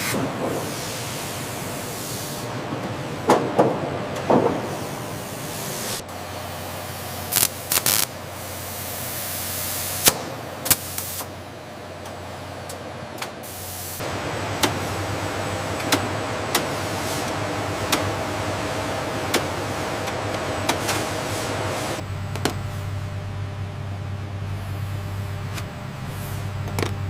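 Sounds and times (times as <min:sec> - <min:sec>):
factory machinery hiss: 0:00.0 - 0:12.6, 0:13.2 - 0:22.0, 0:26.0 - 0:26.6
low hum: 0:21.7 - 0:27.0.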